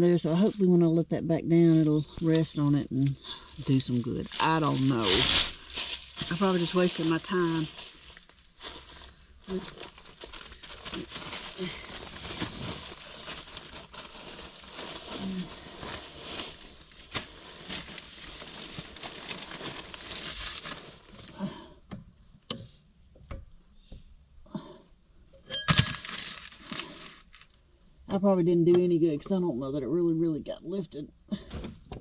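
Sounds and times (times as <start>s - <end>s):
rustling and scraping debris: 1.8s - 21.4s, 25.3s - 27.7s.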